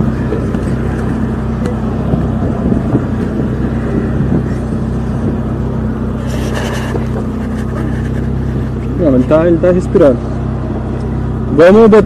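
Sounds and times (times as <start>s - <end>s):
car engine idling: 0.0s - 12.0s
microphone handling noise: 0.5s - 9.0s.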